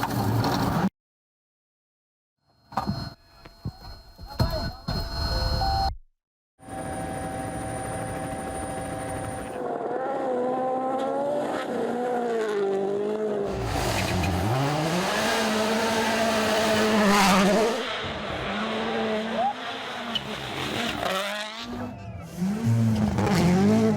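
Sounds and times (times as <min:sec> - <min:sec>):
rally car engines revving: 0:09.5 - 0:23.9.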